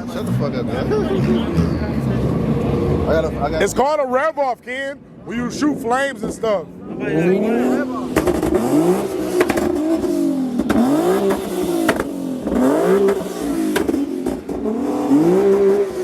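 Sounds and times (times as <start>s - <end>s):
car engine revving: 0.0s - 3.9s, 5.0s - 16.0s
exhaust cracks: 7.4s - 16.0s.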